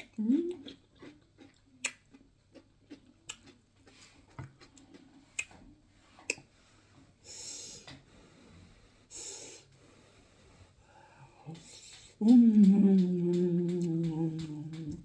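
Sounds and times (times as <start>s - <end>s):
chewing: 0.0s - 6.5s
wet mouth clicks: 0.0s - 6.5s.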